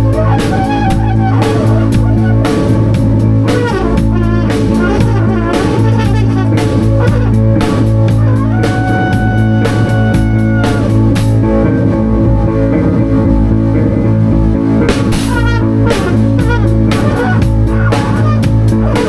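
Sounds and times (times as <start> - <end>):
held high note: 0.0 - 11.4
drum kit and cymbal hits: 0.0 - 11.7, 14.8 - 19.0
guitar playing: 0.0 - 19.0
low sustained bass note: 0.0 - 19.0.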